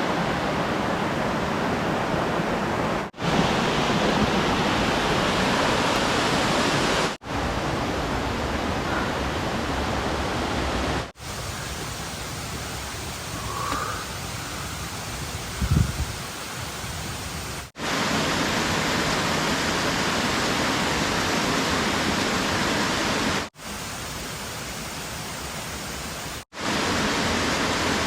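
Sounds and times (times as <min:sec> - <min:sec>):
cascading water rushing: 0:00.0 - 0:28.0.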